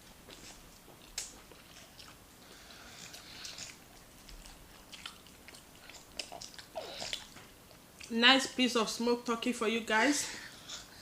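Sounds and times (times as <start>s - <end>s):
person chewing food: 0.2s - 8.1s.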